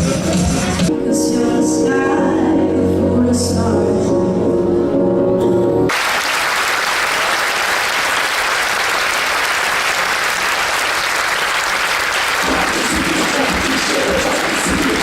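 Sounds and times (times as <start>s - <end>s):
sung stage number with music: 0.0s - 9.0s, 9.8s - 15.0s
audience applauding: 5.9s - 15.0s.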